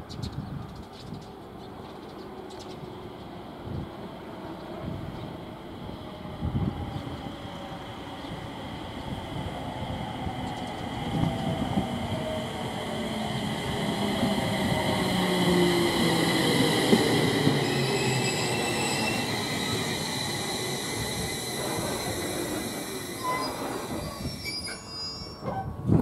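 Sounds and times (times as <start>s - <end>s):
train cars rumbling: 1.2s - 26.0s
train brakes squealing: 14.9s - 25.8s.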